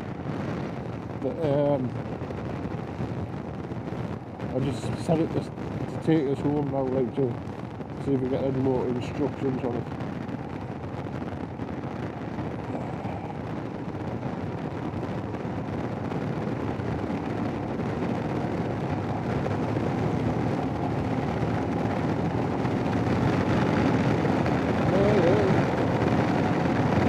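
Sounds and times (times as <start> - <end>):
wind noise: 0.0 - 27.0.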